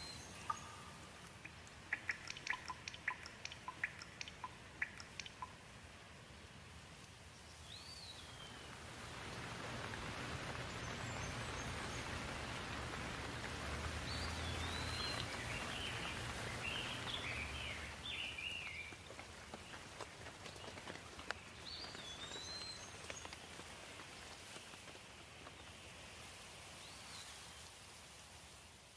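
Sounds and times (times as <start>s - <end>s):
birds chirping: 0.0s - 5.6s, 7.4s - 24.7s
rain hiss: 0.0s - 28.9s
sharp ticks of raindrops: 0.0s - 28.9s.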